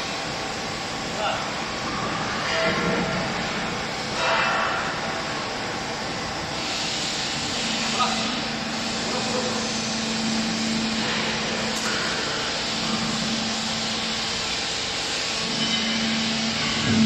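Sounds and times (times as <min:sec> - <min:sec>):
hydraulic baler humming: 0:07.1 - 0:17.0.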